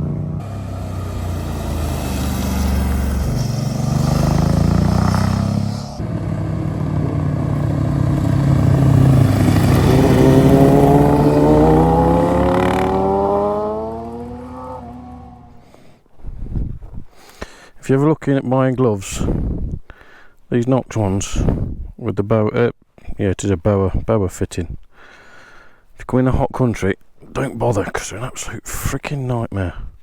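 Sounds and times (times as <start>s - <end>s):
motorcycle engines revving: 0.0s - 15.7s.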